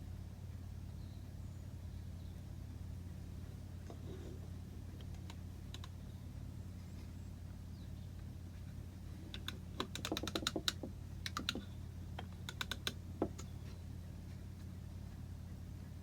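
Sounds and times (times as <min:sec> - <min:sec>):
steady low hum: 0:00.0 - 0:16.0
light sharp clicks and taps: 0:04.9 - 0:06.0, 0:08.2 - 0:16.0.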